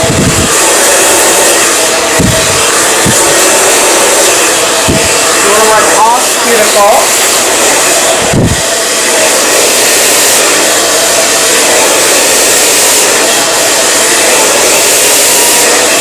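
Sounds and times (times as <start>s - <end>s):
blow dryer running: 0.0s - 16.0s.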